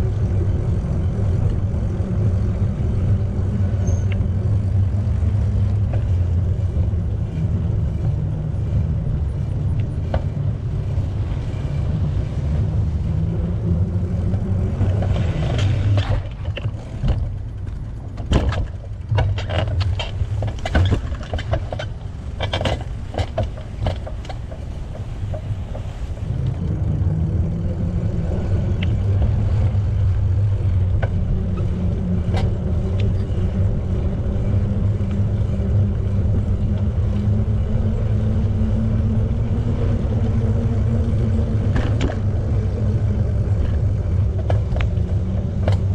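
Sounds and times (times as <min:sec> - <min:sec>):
wind rumble on microphone: 0:00.0 - 0:45.9
sharp clicks and knocks: 0:14.3 - 0:26.6, 0:30.9 - 0:33.3, 0:43.5 - 0:45.9.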